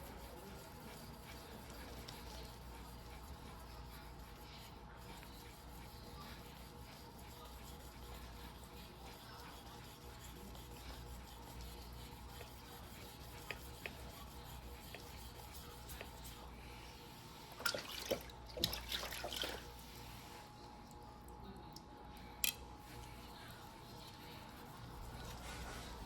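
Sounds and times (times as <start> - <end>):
knife rubbing on whetstone: 0.0 - 17.2.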